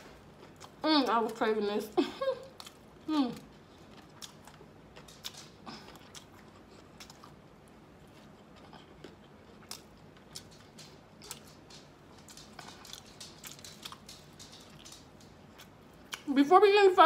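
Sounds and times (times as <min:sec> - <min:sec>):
person chewing food: 0:00.0 - 0:00.8, 0:02.4 - 0:16.3
small crunches: 0:08.0 - 0:16.3.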